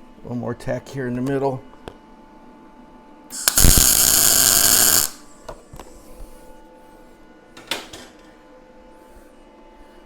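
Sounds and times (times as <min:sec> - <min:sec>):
welding arc crackling: 0:03.3 - 0:05.3.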